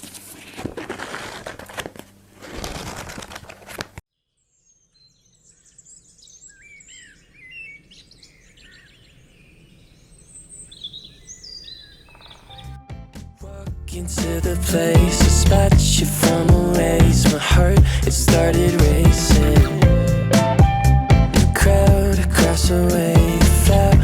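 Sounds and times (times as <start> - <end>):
small birds chirping: 4.4 - 12.8
background music: 12.6 - 24.0.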